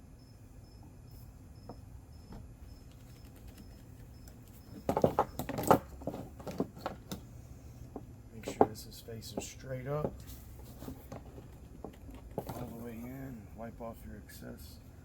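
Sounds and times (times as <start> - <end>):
cricket chirping: 0.0 - 5.4
clattering and knocking: 4.8 - 7.2, 9.4 - 12.7.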